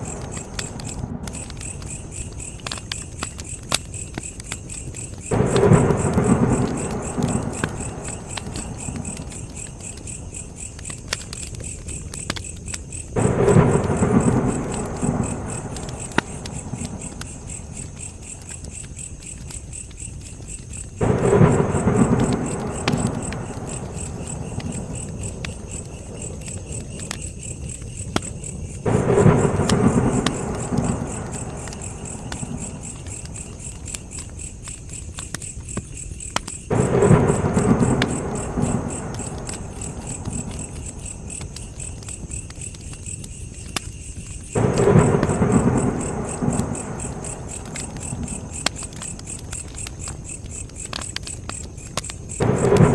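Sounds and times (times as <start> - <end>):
campfire crackling: 0.0 - 52.9
insects chirring: 0.0 - 52.9.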